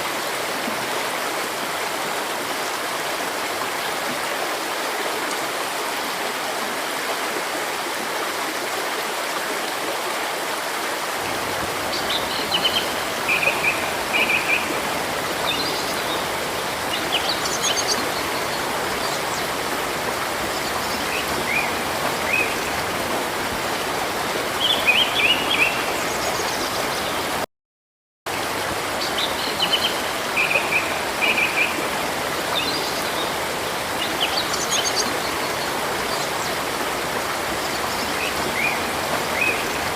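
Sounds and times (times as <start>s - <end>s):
river water rushing: 0.0s - 27.4s, 28.3s - 39.9s
songbirds chirping: 11.3s - 27.4s.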